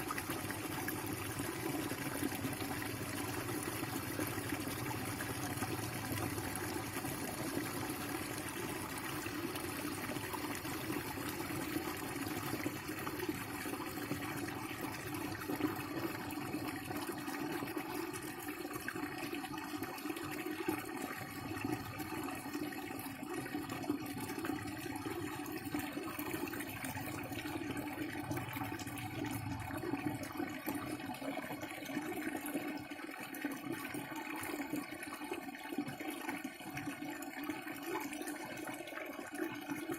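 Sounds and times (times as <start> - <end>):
water gushing: 0.0 - 39.9.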